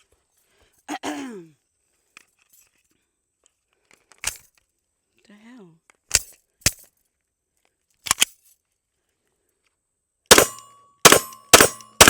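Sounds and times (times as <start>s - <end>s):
pistol clicks: 10.3s - 12.0s
pistol shots: 10.3s - 12.0s.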